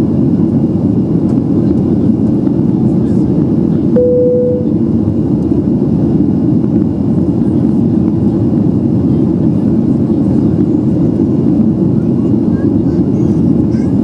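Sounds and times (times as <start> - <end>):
jet engine rumble in cabin: 0.0 - 14.0
short steady tone: 4.0 - 4.8.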